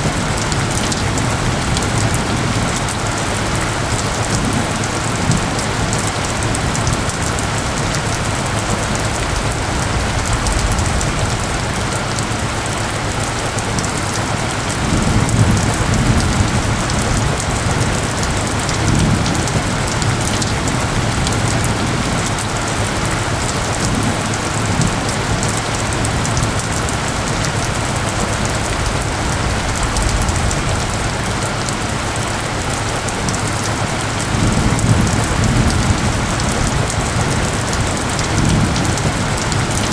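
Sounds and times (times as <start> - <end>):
heavy rain hissing: 0.0 - 39.9
low rumble: 8.9 - 12.8, 27.7 - 33.3.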